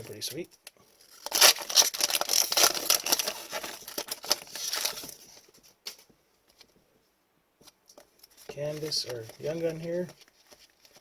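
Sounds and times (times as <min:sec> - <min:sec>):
card packs crinkling: 0:00.0 - 0:06.0, 0:08.2 - 0:11.0.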